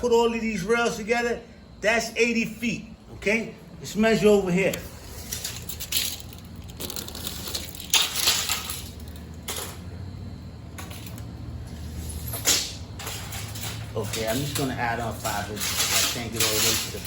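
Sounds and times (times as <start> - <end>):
handling rustling and scraping: 4.6 - 9.9, 10.7 - 17.0.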